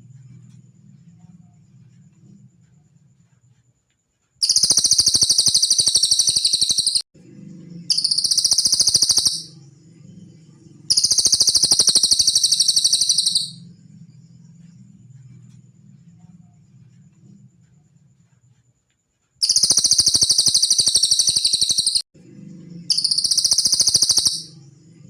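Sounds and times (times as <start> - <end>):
bird trilling: 4.4 - 7.0, 7.9 - 9.6, 10.9 - 13.6, 19.4 - 22.0, 22.9 - 24.6.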